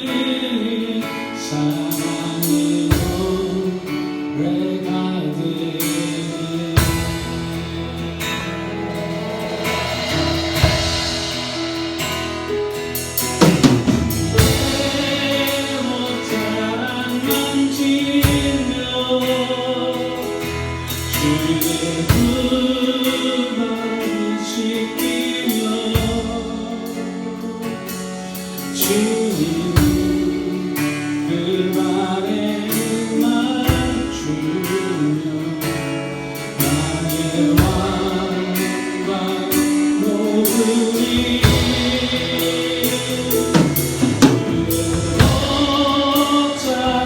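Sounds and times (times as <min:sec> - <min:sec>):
people singing: 0:00.0 - 0:28.0, 0:28.6 - 0:47.0
praise band playing: 0:00.0 - 0:47.0
drum kit hits: 0:06.8 - 0:17.6, 0:37.6 - 0:47.0.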